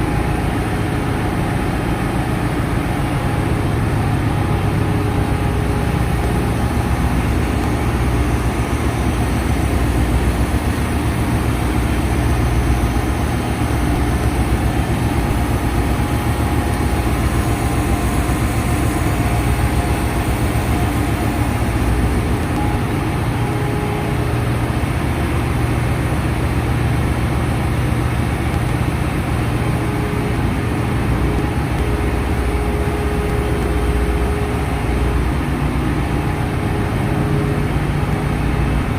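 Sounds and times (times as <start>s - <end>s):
engine room machinery drone: 0.0s - 38.9s.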